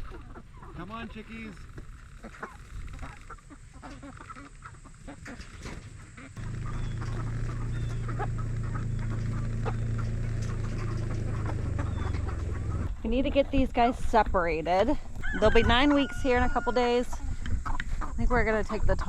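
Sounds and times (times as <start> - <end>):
chickens peeping and clucking: 0.0 - 14.3, 15.0 - 19.0
steady low hum: 6.1 - 15.2.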